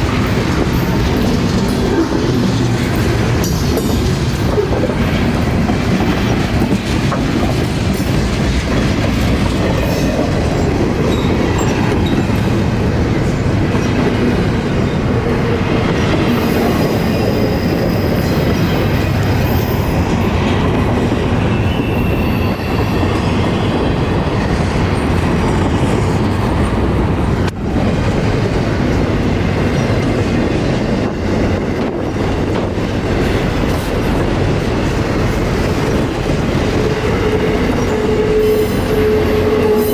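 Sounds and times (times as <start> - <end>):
train wheels clattering on rails: 0.0 - 39.9
high-pitched wheel squeal: 21.5 - 23.4, 36.8 - 39.9.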